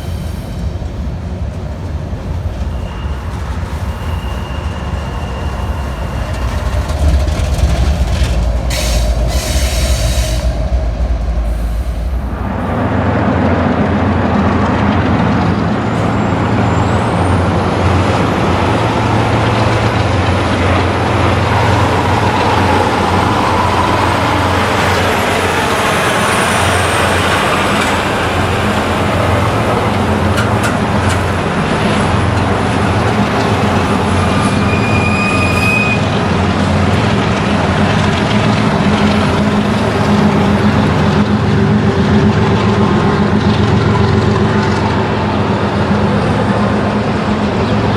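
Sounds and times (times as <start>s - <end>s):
diesel locomotive drone: 0.0s - 47.9s
freight train rumble: 0.0s - 47.9s
faint high squeals: 2.3s - 12.9s, 33.6s - 36.2s.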